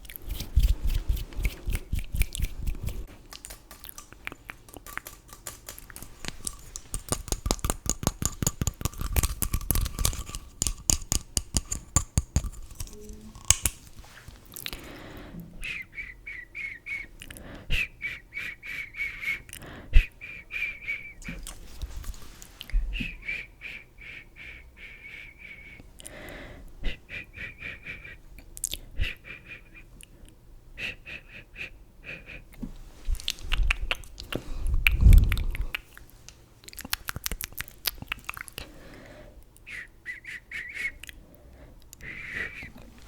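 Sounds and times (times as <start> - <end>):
tapping or brushing strokes: 0.0 - 14.5.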